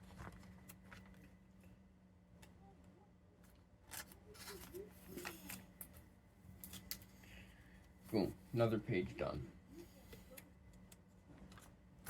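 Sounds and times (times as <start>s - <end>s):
plastic-sleeved cards rustling: 3.8s - 6.0s.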